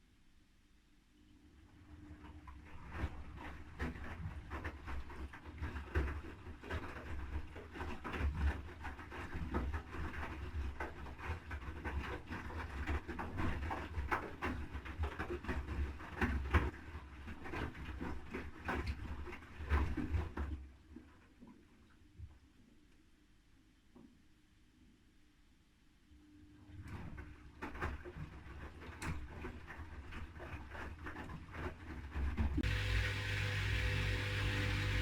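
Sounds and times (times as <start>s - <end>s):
water sloshing in washing machine: 1.5s - 21.9s, 26.7s - 35.0s
low motor hum: 32.6s - 35.0s.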